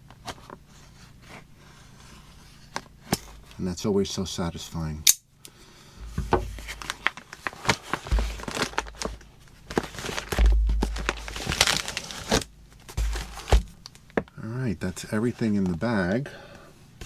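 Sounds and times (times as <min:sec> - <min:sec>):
dull low thumps: 0:06.0 - 0:06.7, 0:08.1 - 0:09.1, 0:10.2 - 0:13.9
plastic packets crinkling: 0:06.2 - 0:14.2.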